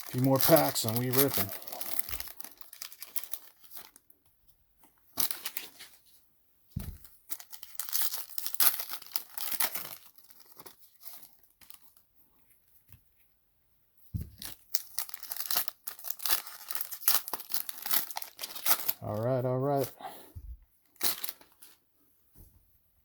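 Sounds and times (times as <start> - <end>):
foil wrappers tearing and crinkling: 0.0 - 4.0, 5.2 - 5.9, 7.3 - 12.0, 14.4 - 19.2, 20.9 - 21.8
dull thuds: 6.8 - 7.1.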